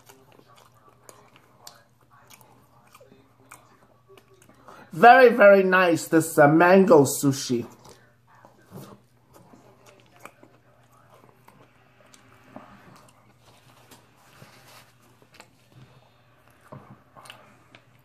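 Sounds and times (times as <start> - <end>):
person chewing wet smacks: 0.0 - 4.9, 7.7 - 14.0, 15.1 - 18.0.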